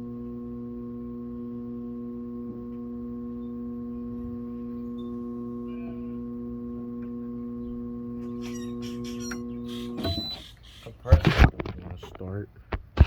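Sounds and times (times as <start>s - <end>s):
air conditioner electrical hum: 2.4s - 12.7s.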